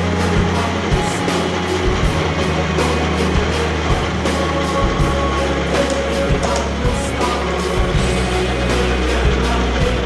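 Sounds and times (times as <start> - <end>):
bass line: 0.0 - 10.0
drum and cymbal hits: 0.0 - 10.0.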